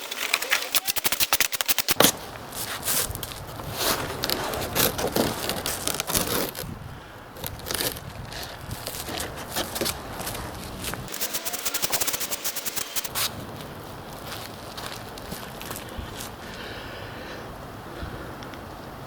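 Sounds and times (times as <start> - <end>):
handling clicks and scrapes: 0.0 - 6.8, 7.4 - 13.4
crinkling rustles: 0.0 - 11.1.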